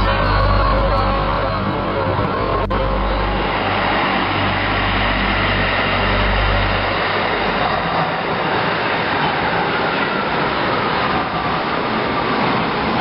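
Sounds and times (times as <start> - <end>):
low motor hum: 0.0 - 9.4
light rail train rumble and hiss: 0.0 - 13.0.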